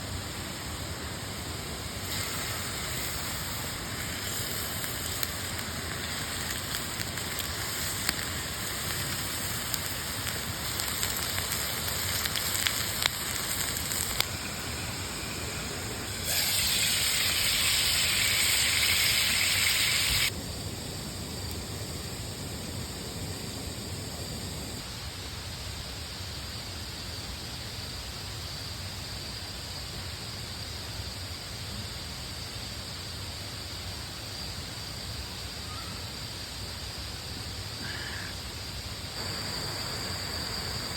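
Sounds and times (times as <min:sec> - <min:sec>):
steak sizzling in a frying pan: 0:01.9 - 0:20.3, 0:39.2 - 0:40.9
wood fire crackling and popping: 0:01.9 - 0:20.7.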